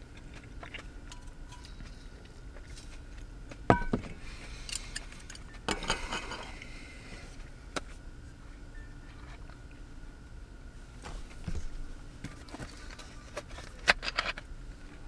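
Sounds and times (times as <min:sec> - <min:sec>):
kitchenware ringing clink: 0:03.7 - 0:04.1
rustling and scraping: 0:10.8 - 0:14.4.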